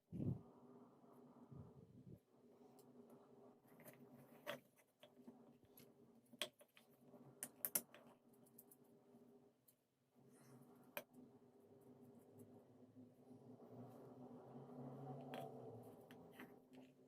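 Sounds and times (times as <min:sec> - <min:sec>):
faint steady hum: 0:00.0 - 0:17.0
small clicks and taps: 0:06.3 - 0:08.8.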